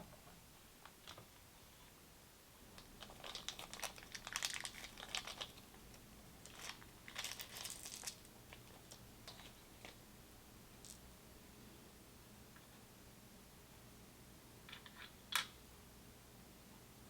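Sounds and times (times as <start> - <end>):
plastic packaging crinkling: 2.8 - 10.0.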